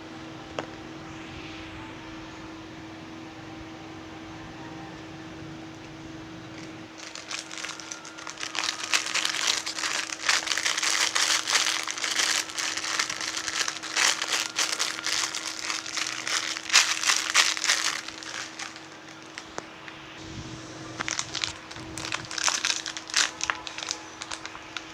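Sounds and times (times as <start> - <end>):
wrapping crinkling: 6.6 - 20.0, 21.0 - 24.9.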